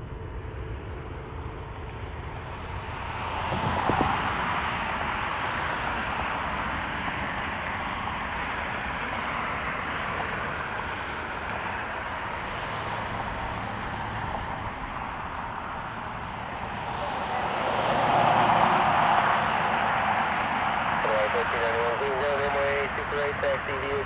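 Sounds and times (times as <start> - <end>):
jet engine noise: 0.0 - 24.0
wind on microphone: 3.5 - 4.3.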